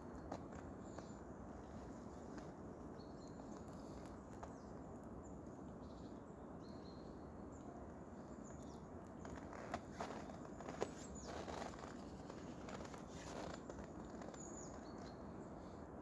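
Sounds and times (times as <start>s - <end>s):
faint clicks: 3.5s - 5.2s
small birds calling: 8.3s - 15.8s.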